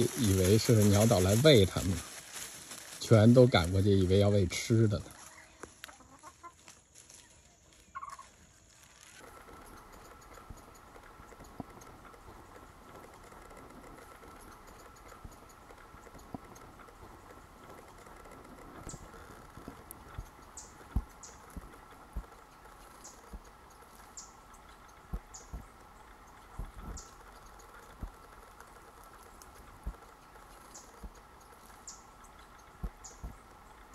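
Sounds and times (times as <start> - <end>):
faint steady hum: 7.8 - 33.9
songbird chip notes: 9.2 - 33.9
soft low thumps: 10.2 - 33.9.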